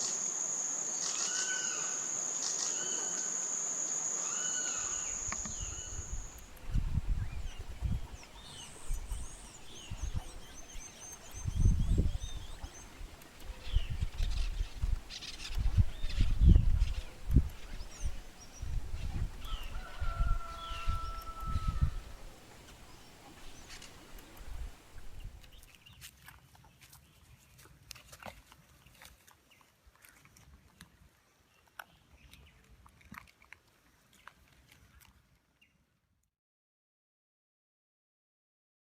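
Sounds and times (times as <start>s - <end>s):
bird chirps: 0.0s - 6.4s
songbirds chirping and whistling: 1.0s - 22.2s.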